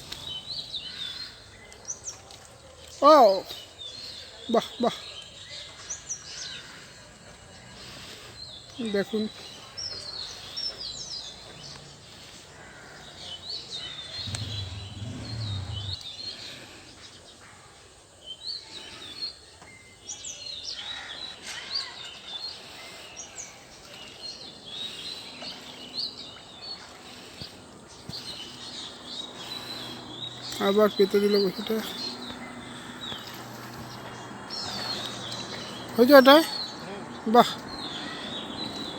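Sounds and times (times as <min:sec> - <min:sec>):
small birds chirping: 0:00.0 - 0:17.5, 0:18.2 - 0:38.9
outdoor background noise: 0:00.0 - 0:38.9
low hum: 0:14.2 - 0:16.0.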